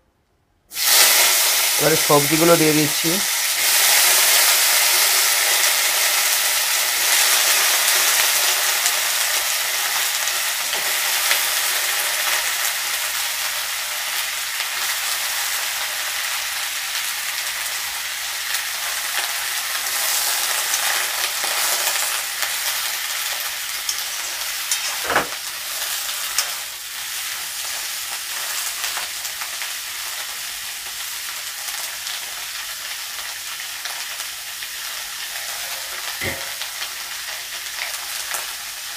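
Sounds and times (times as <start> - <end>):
vegetables sizzling in hot oil: 0.7 - 38.9
sharp knock: 25.0 - 25.4, 36.2 - 36.6.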